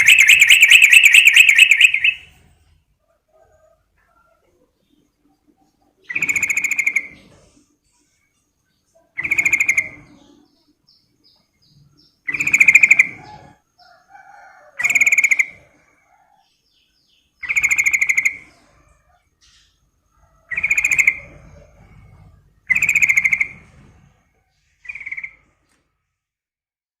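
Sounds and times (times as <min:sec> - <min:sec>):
bird trilled calls: 0:00.0 - 0:02.3, 0:12.3 - 0:13.3
soft bird chirps: 0:00.0 - 0:02.4.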